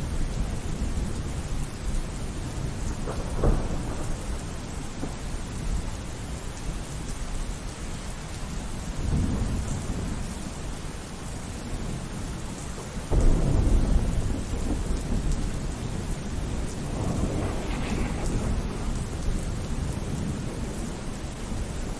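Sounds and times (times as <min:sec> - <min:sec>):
rolling thunder: 0:00.0 - 0:06.4, 0:11.6 - 0:21.9
steady rain: 0:00.0 - 0:21.9
loud thunderclap: 0:02.5 - 0:05.8, 0:12.8 - 0:21.9.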